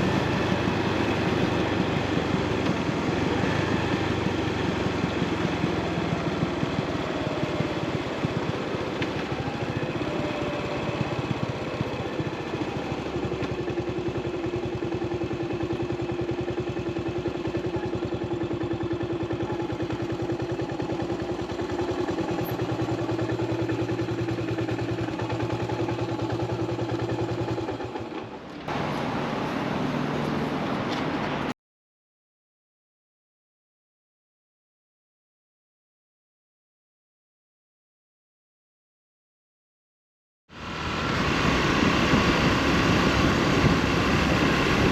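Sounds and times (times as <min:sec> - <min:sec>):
single-cylinder motorcycle engine running: 0:00.0 - 0:31.5, 0:40.6 - 0:44.9.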